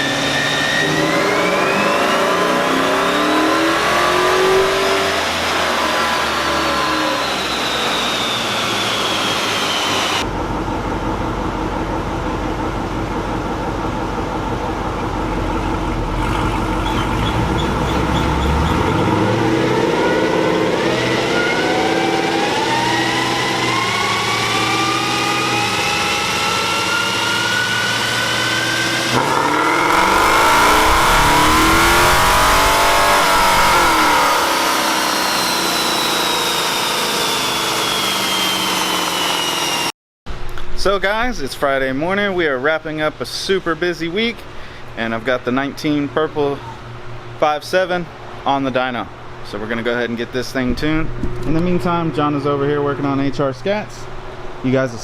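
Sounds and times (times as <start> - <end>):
car engine revving: 0.0 - 11.2, 14.4 - 39.9.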